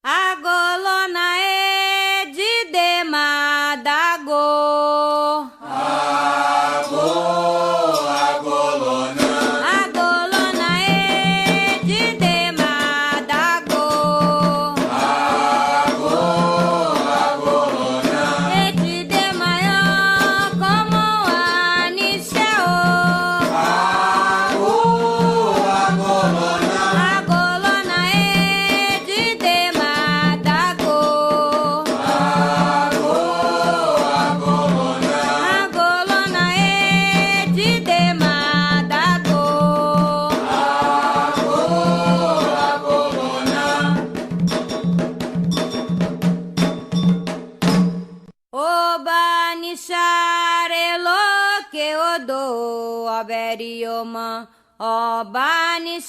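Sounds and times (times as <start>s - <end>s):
group of singers chanting: 5.6s - 9.8s, 14.8s - 18.9s, 23.4s - 27.5s, 31.9s - 35.8s, 40.3s - 44.1s
drums beating: 9.2s - 48.3s.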